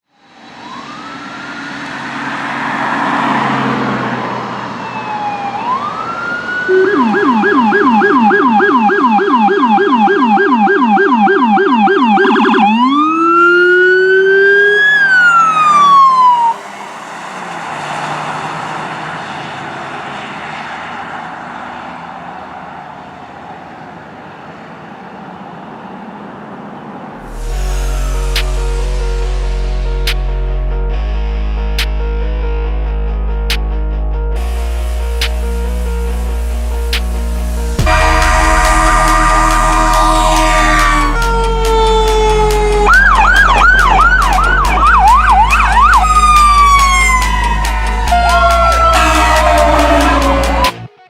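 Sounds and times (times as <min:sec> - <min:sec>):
traffic road and engine noise: 0:00.0 - 0:51.0
police siren wailing and yelping: 0:00.3 - 0:20.0, 0:38.6 - 0:51.0.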